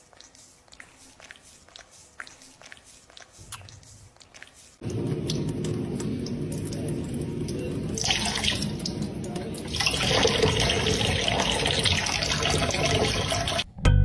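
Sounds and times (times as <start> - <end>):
water running into a sink: 4.8 - 13.6.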